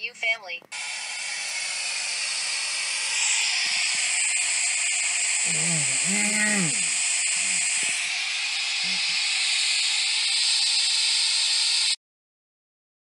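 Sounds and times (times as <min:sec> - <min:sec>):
loud static hiss: 0:00.6 - 0:12.0
voice-like fragments: 0:05.4 - 0:08.2, 0:08.8 - 0:09.2.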